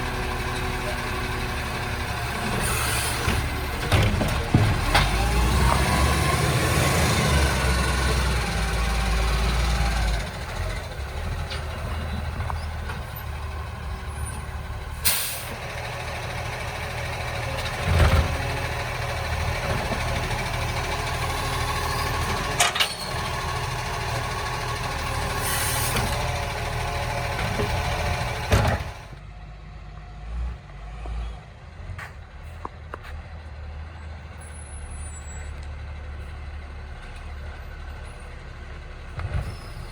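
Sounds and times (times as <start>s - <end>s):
garbage truck engine running: 0.0s - 30.8s, 31.5s - 39.9s
air brake hissing: 2.5s - 3.4s, 15.0s - 15.6s, 25.3s - 26.2s.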